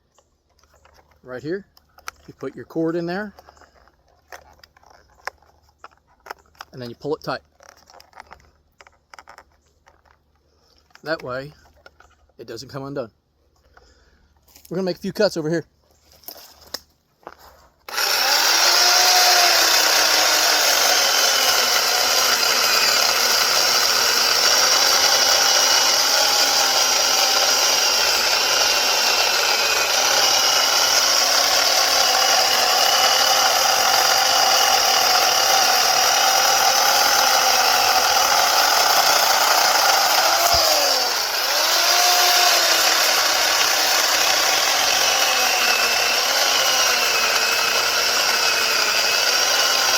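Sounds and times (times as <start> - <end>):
electric chainsaw cutting log: 2.0 - 9.4, 17.9 - 49.9.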